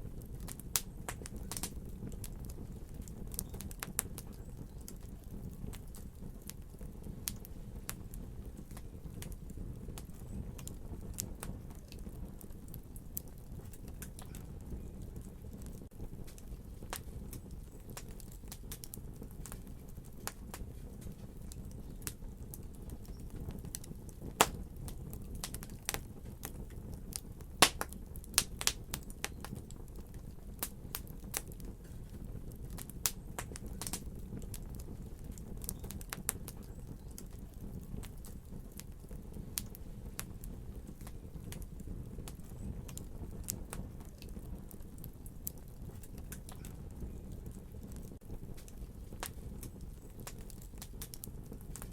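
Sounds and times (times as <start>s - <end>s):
wood fire crackling in fireplace: 0.0s - 51.9s
sharp pops and snaps: 23.0s - 29.7s.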